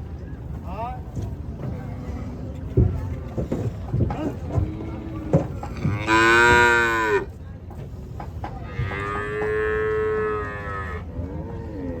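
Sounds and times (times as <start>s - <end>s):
cattle mooing: 5.8s - 7.3s.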